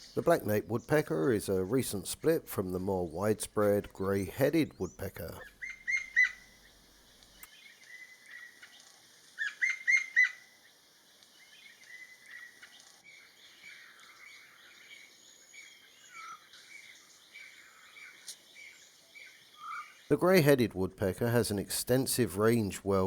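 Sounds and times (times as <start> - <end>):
wild birds chirping: 0.0 - 23.0.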